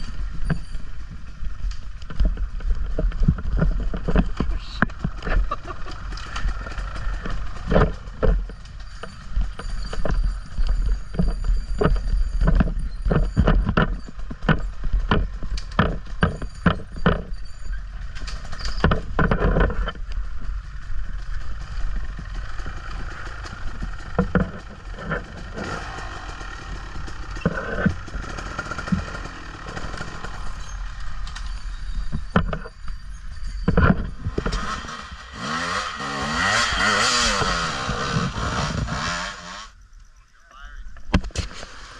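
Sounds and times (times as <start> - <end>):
knocks and clatter from bumps: 0.0 - 30.6
motorbike engine rumble: 0.0 - 41.9.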